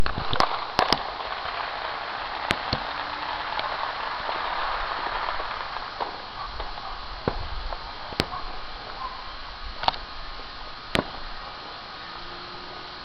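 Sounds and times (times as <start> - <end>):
distant firework pops: 0.0 - 9.0, 9.8 - 10.1, 10.9 - 11.4
crackling hiss: 0.0 - 13.0.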